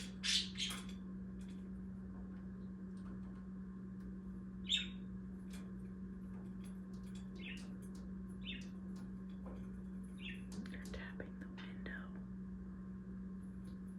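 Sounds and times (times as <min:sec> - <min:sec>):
steady low hum: 0:00.0 - 0:13.9
budgerigar chirps: 0:00.1 - 0:00.8.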